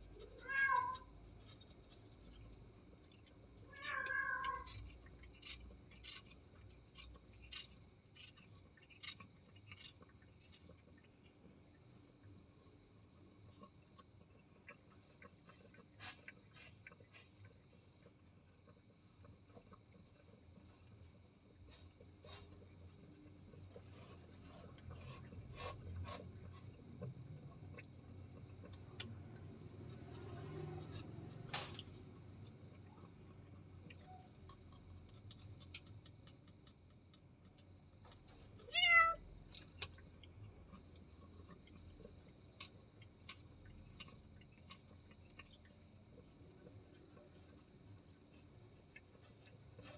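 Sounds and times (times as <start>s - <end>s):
faint ticks and clicks: 0.0s - 49.9s
cat meowing: 0.3s - 1.1s, 3.7s - 4.8s, 38.6s - 39.2s.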